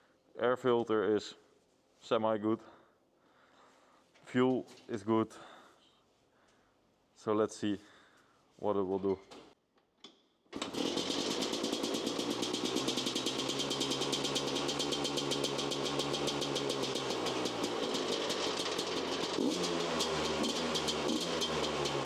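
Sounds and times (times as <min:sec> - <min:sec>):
dirtbike engine running: 0:10.6 - 0:22.0.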